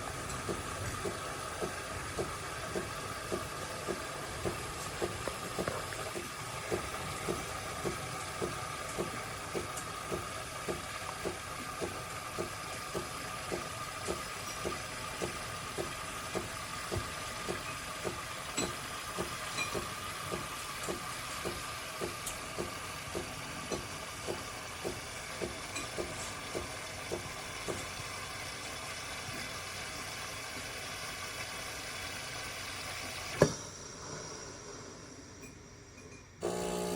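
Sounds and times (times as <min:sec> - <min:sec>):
pump pulsing: 0:00.0 - 0:36.9
espresso machine hissing: 0:36.4 - 0:36.9.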